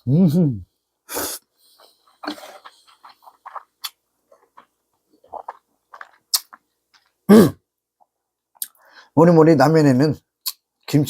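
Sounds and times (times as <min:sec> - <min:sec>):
person slurping noodles: 0:01.1 - 0:03.7
chewing: 0:01.8 - 0:07.2.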